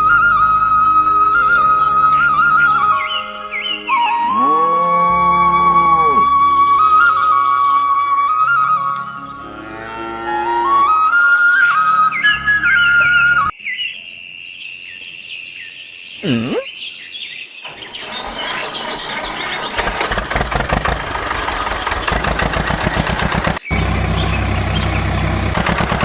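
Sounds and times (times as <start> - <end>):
birds chirping: 0.0 - 20.2, 21.6 - 26.0
small engine clattering: 17.7 - 26.0.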